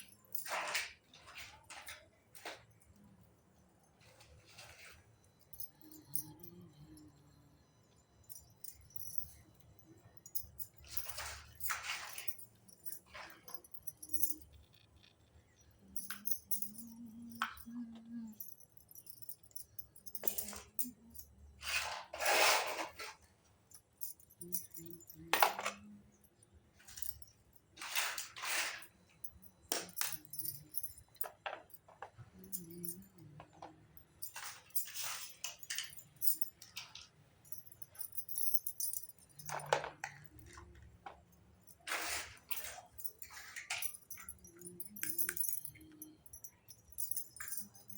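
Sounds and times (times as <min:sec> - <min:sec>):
light clinks of toy pieces: 0:07.9 - 0:47.9
short rustling scrapes: 0:21.6 - 0:23.2.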